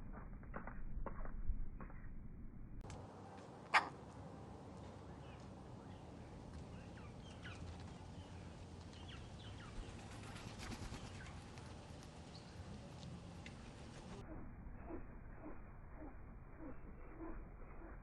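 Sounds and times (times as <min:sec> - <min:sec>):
small birds chirping: 0:04.7 - 0:12.8.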